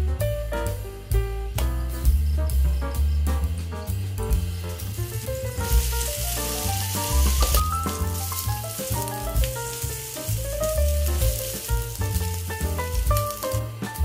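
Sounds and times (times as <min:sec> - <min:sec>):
background music with bass: 0:00.0 - 0:14.0
meat sizzling in oil: 0:03.9 - 0:14.0.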